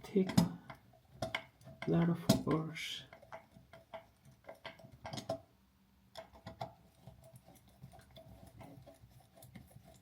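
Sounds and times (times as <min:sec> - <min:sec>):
screwdriver clicking and scraping: 0:06.2 - 0:10.0.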